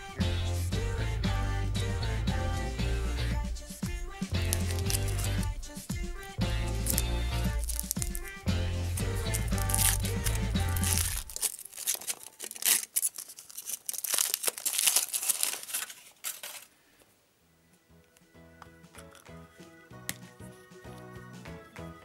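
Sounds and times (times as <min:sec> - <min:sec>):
background music: 0:00.0 - 0:11.5, 0:17.5 - 0:22.0
foil wrapper crinkling and tearing: 0:03.7 - 0:05.5, 0:06.7 - 0:16.7.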